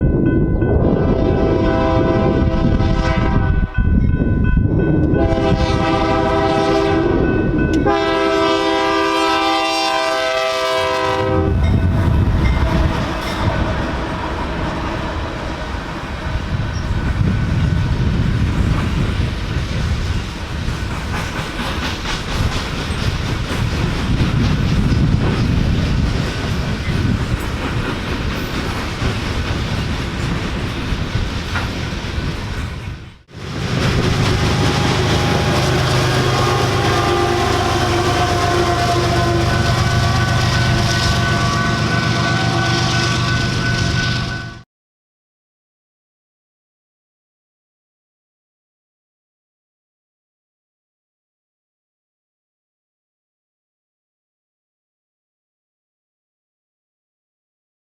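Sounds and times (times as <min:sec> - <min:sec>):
train rumbling past: 0:00.0 - 0:44.6
locomotive air horn: 0:01.0 - 0:03.7, 0:05.1 - 0:11.7, 0:33.3 - 0:44.6
wheels clattering over rail joints: 0:20.2 - 0:41.4.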